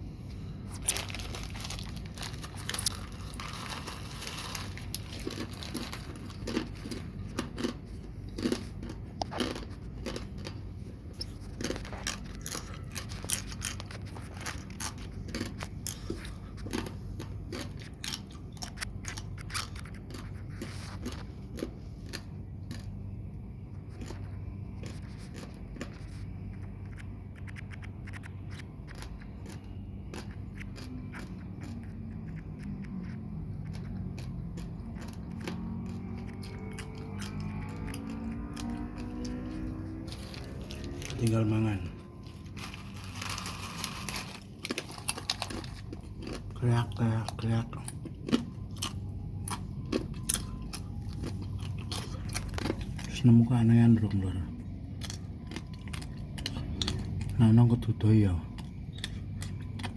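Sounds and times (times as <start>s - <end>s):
low steady hum: 0.0s - 59.9s
chips crunching: 0.7s - 22.9s, 23.9s - 26.1s, 28.1s - 54.3s, 54.9s - 59.9s.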